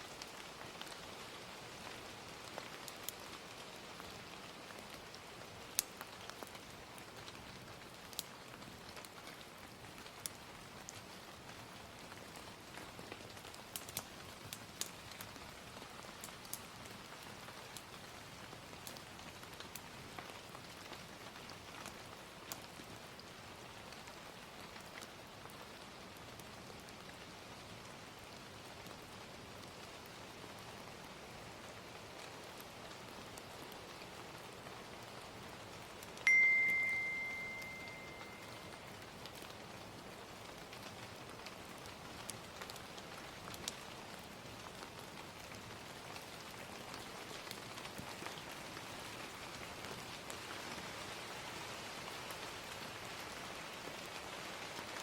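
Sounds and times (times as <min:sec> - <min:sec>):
fire crackles: 0:00.0 - 0:55.0
gentle rain hiss: 0:00.0 - 0:55.0
timer bell ringing: 0:36.3 - 0:38.7.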